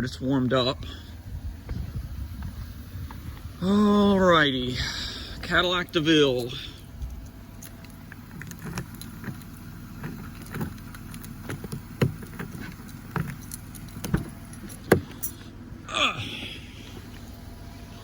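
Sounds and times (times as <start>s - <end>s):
engine idling: 0.0s - 18.0s
knocks and handling noises: 7.6s - 15.4s.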